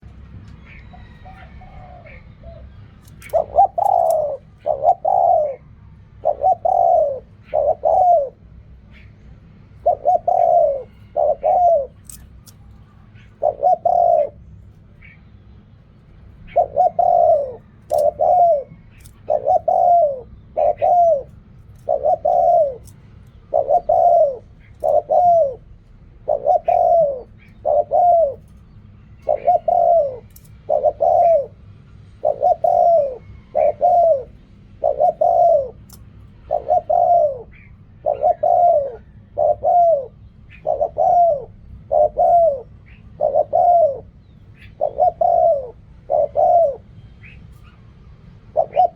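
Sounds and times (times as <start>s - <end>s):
dove cooing: 0.0s - 15.2s, 16.3s - 47.8s, 48.4s - 48.9s.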